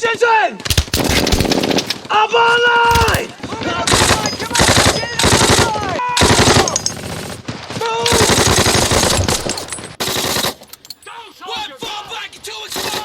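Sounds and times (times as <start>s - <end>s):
machine-gun bursts: 0.7s - 2.1s, 2.9s - 7.5s, 8.1s - 10.6s, 12.7s - 13.0s
people yelling: 2.1s - 6.9s, 11.0s - 13.0s.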